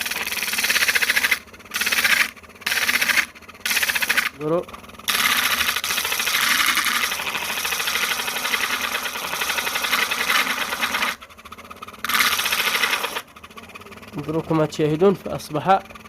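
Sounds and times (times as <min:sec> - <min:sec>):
blade grinding on sandpaper disc: 0:00.0 - 0:04.5, 0:05.1 - 0:14.5.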